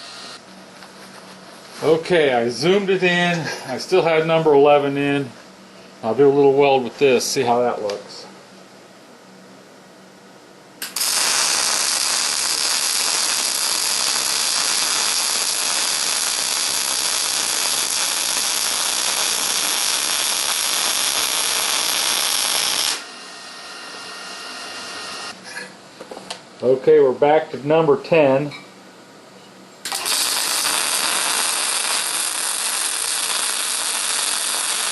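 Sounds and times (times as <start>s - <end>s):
welding arc crackling: 0.0s - 0.4s, 10.8s - 25.4s, 29.8s - 34.9s.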